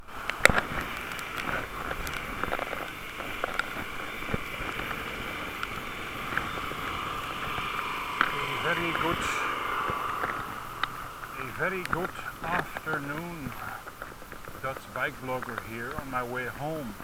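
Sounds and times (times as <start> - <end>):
small clicks and rattles: 0.0 - 8.3
muffled bicycle riding rush: 0.0 - 17.0.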